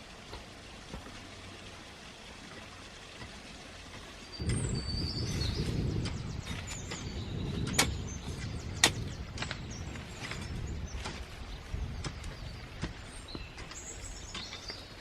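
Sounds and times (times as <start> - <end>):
birds chirping: 2.8 - 15.0
wind buffeting microphone: 4.4 - 15.0.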